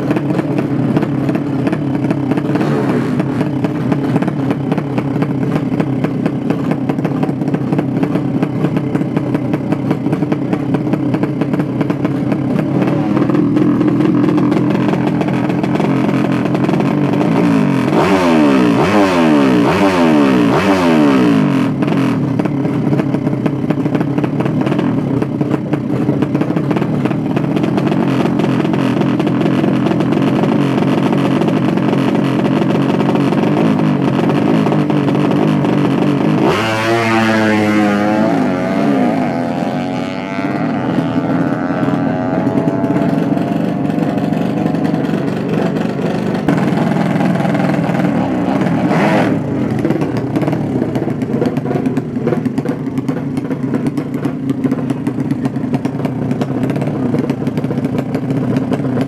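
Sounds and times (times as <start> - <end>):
motorcycle engines running: 0.0 - 59.0
motorcycles speeding past: 36.2 - 49.8.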